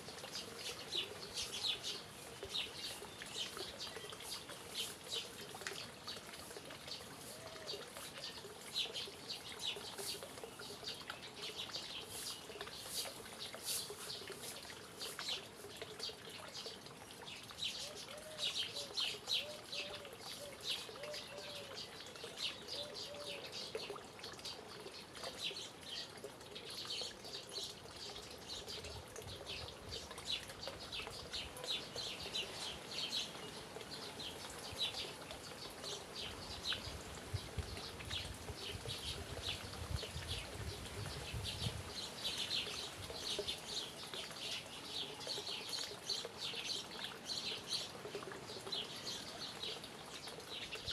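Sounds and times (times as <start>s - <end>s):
birds chirping: 0.2s - 50.9s.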